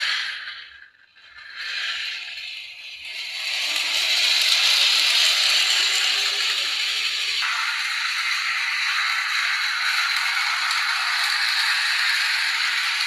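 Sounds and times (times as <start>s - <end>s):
model train rattling whir: 0.0s - 13.0s.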